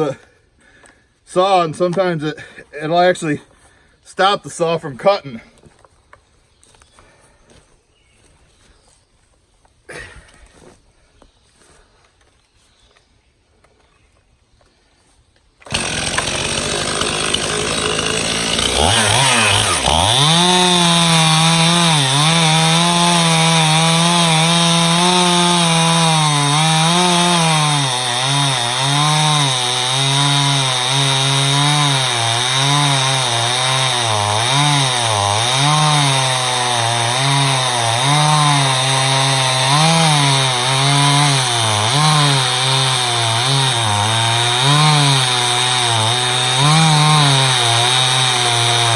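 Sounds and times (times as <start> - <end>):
chainsaw cutting wood: 15.6 - 48.9.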